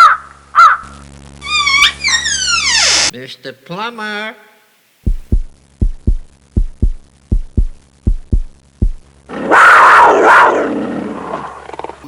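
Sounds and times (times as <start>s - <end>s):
heartbeat thumps: 5.0s - 9.1s
animal roar: 9.3s - 12.0s.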